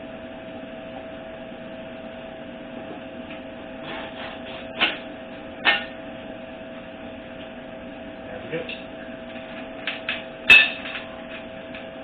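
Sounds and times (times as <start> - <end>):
steady hum with constant tone: 0.0 - 12.0
scraping and handling noises: 3.8 - 5.0.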